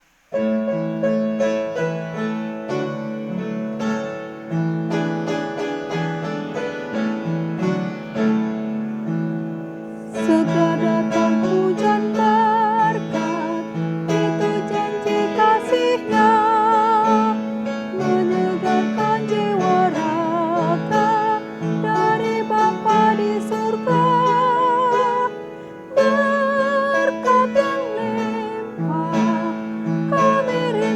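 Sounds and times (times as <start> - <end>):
piano playing a hymn: 0.3 - 30.9
woman singing with vibrato: 10.0 - 30.9.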